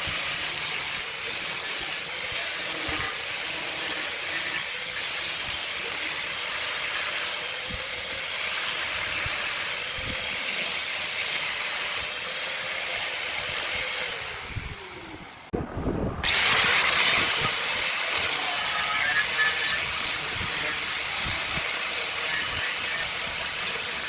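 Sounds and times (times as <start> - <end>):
wood lathe tool hissing: 0.0 - 15.6, 16.2 - 24.0
lathe humming as it slows: 16.2 - 20.8.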